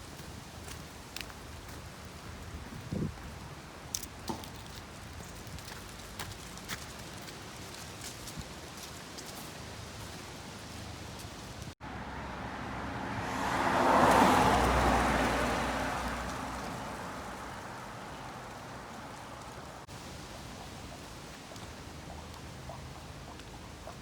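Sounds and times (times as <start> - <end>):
vehicle passing by: 11.8 - 19.9.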